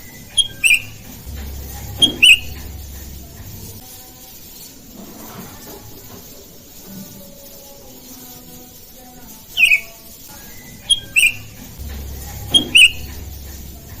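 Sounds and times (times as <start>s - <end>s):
birds calling: 0.0s - 3.8s, 9.4s - 14.0s.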